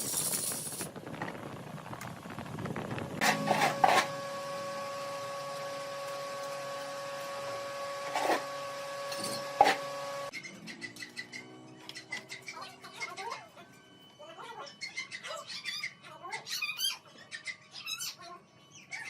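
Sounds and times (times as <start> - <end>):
tool scraping on wood: 3.2 - 4.3, 8.0 - 10.0
woodworking lathe whining: 3.2 - 10.3.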